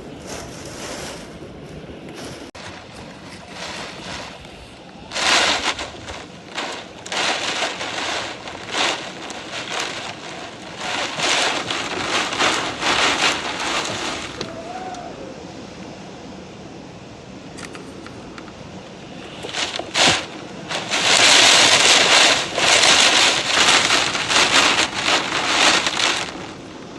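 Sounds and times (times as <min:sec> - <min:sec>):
wind buffeting microphone: 0:00.0 - 0:26.9
rain: 0:02.6 - 0:16.3, 0:17.4 - 0:26.9.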